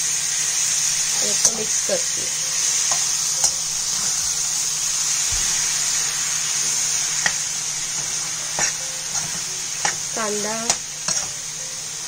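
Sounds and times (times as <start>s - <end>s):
stir-fry sizzling in oil: 0.0s - 12.0s
metal spatula clicking on pan: 10.6s - 11.3s.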